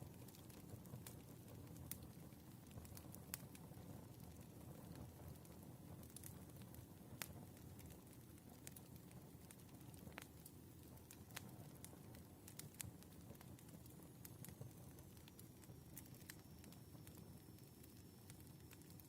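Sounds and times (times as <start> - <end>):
firewood crackling and popping: 0.0 - 19.0
low fire rumble: 0.0 - 19.0.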